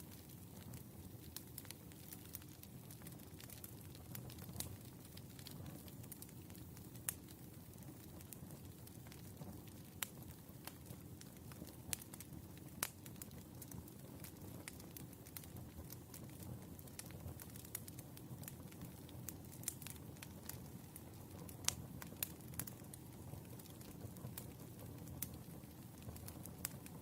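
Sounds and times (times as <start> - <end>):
fire crackling and popping: 0.0 - 27.0
low rumble of flames: 0.0 - 27.0.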